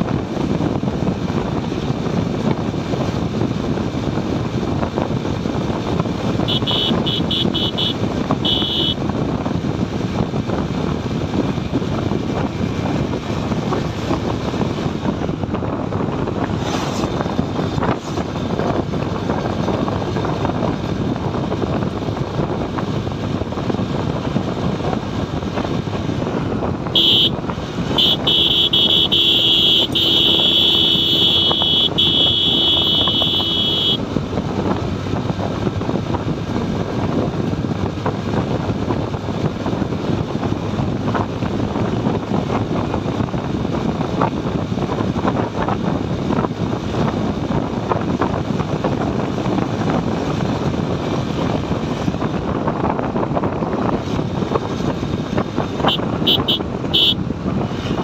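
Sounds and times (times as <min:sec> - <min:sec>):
motorcycle engine: 0:00.0 - 0:58.0
wind and road rush: 0:00.0 - 0:58.0
vehicle horn: 0:06.4 - 0:09.0, 0:26.9 - 0:34.0, 0:55.8 - 0:57.2.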